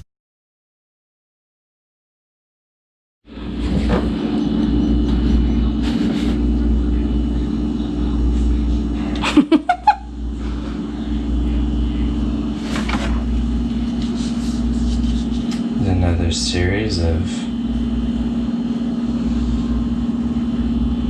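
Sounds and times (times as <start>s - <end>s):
vehicle engine running: 3.3s - 9.2s.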